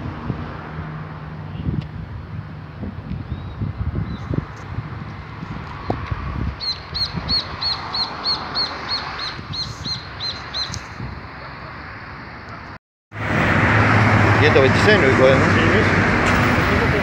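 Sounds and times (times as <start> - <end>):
steady outdoor rumble: 0.0 - 17.0
street traffic: 0.0 - 17.0.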